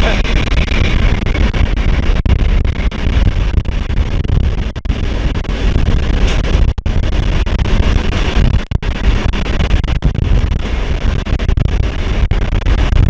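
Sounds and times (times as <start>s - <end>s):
moving train rumble: 0.0s - 1.4s
wind buffeting microphone: 0.0s - 13.0s.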